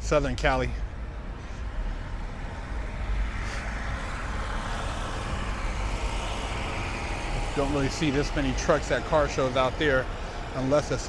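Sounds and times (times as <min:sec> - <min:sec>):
outdoor noise hiss: 0:00.0 - 0:11.0
vehicle engine running: 0:00.9 - 0:11.0.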